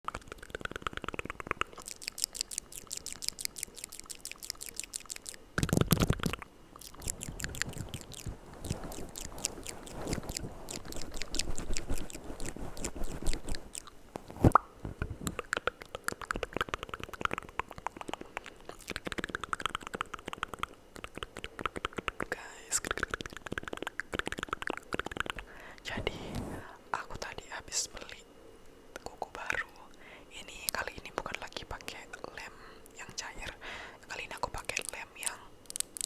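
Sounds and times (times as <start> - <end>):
wet mouth clicks and smacks: 0.1 - 25.5.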